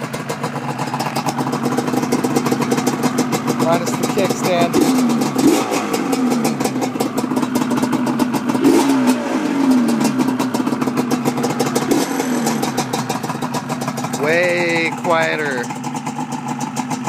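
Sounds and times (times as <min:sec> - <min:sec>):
two-stroke engine idling and revving: 0:00.0 - 0:17.0.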